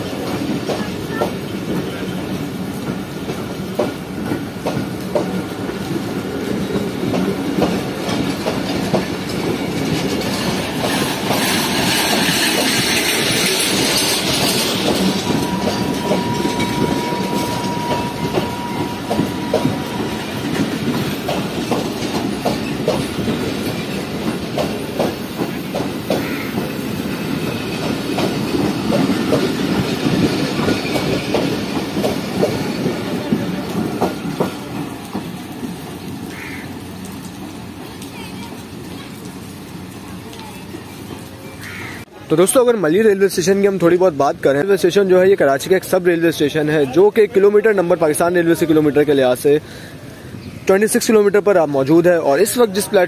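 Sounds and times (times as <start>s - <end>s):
train wheels clickety-clack: 0.0s - 36.4s.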